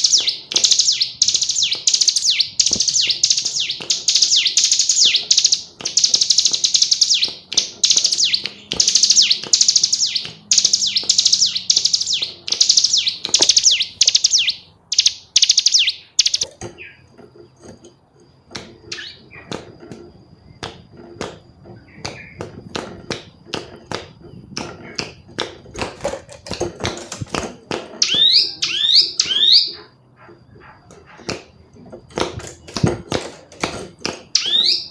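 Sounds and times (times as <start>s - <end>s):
bird calling in rapid trills: 0.0s - 17.1s, 18.9s - 19.5s, 28.0s - 31.3s, 34.3s - 34.9s.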